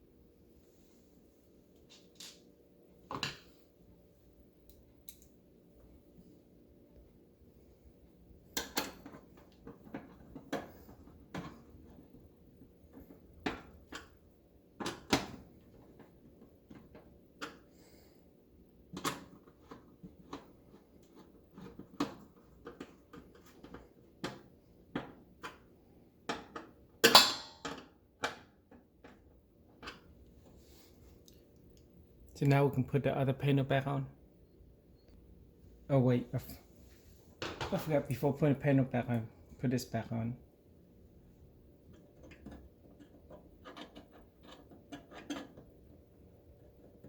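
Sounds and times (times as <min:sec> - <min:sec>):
plastic parts clicking and knocking: 0:08.6 - 0:14.2, 0:18.9 - 0:30.2, 0:41.9 - 0:47.0.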